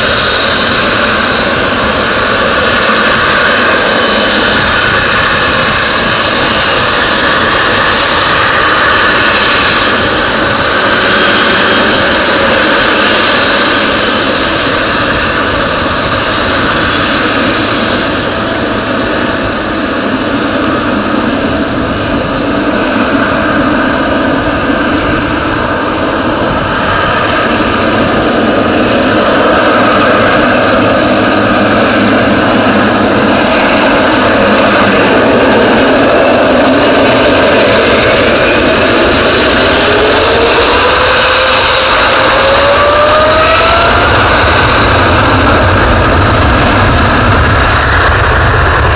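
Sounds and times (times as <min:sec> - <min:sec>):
loud jet engine noise: 0:00.0 - 0:48.9
whining jet tones: 0:00.0 - 0:48.9.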